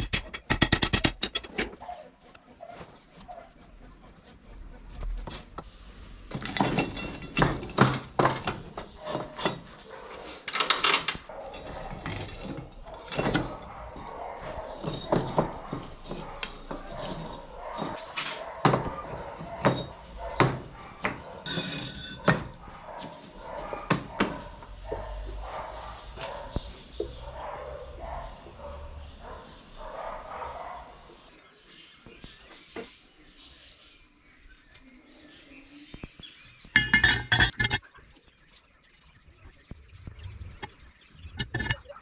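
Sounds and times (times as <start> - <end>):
metal knocks and clanks: 0.0 - 1.9, 6.3 - 25.1, 36.8 - 37.8, 41.3 - 41.9.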